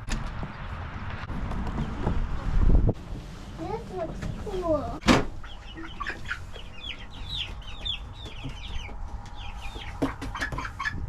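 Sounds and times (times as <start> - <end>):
chicks peeping: 3.4 - 11.0.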